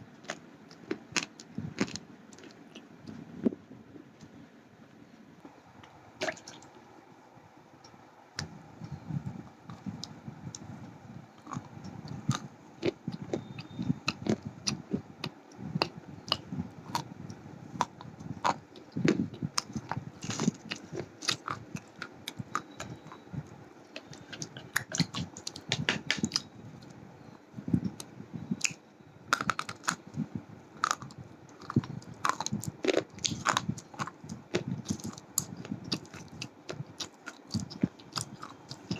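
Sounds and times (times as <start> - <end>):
low grinding chew: 0.2 - 3.2
person crunching slate pencils: 28.6 - 30.1, 30.8 - 38.9.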